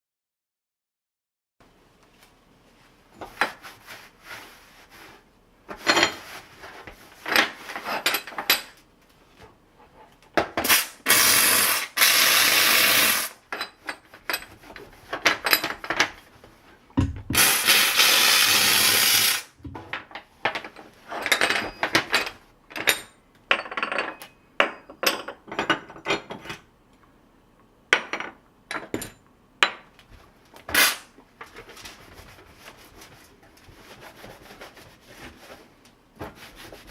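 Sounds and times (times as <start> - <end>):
steam hissing: 10.7 - 13.3, 17.4 - 19.5.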